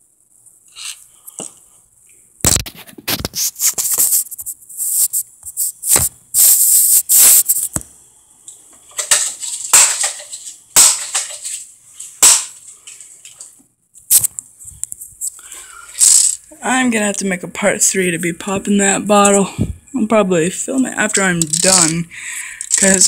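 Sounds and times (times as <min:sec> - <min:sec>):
rattling hiss: 0:03.6 - 0:07.7, 0:15.7 - 0:16.5.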